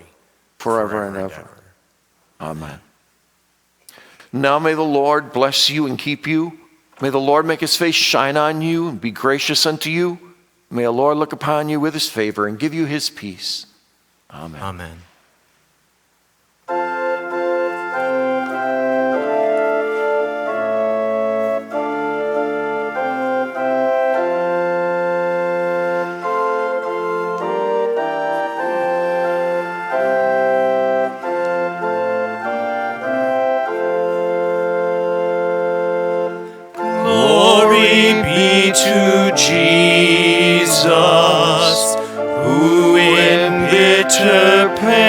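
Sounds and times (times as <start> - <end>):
organ playing sustained chords: 16.7 - 45.0.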